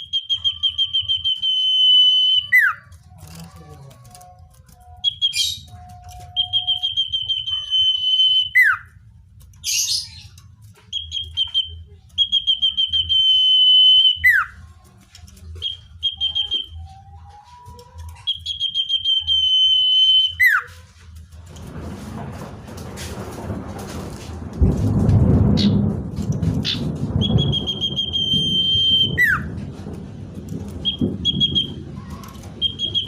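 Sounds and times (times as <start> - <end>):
bird trilling: 0.0 - 8.9, 9.6 - 14.6, 15.6 - 20.7, 26.6 - 29.5, 30.8 - 33.0
faint low rumble: 20.8 - 33.0
bird down-slurred whistle: 27.2 - 29.5, 30.8 - 31.8, 32.6 - 33.0.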